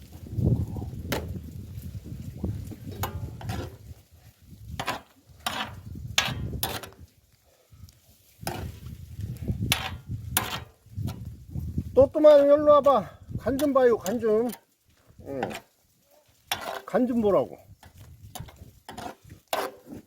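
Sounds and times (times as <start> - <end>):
utensil scraping on griddle: 2.7 - 4.0, 4.7 - 7.1, 8.2 - 8.9, 9.7 - 11.2, 15.4 - 20.0.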